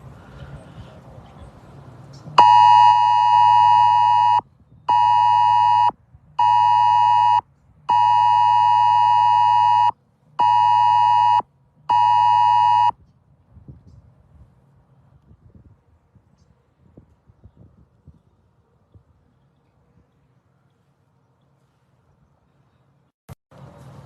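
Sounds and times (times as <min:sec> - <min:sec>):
loud electronic beeping: 0:02.4 - 0:12.9.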